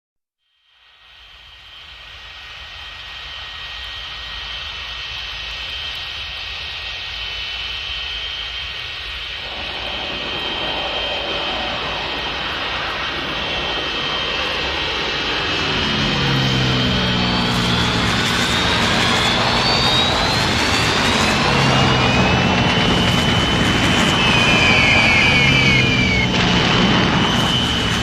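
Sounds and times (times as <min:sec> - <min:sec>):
aircraft engines droning: 0:00.8 - 0:28.0
high whine: 0:06.7 - 0:28.0.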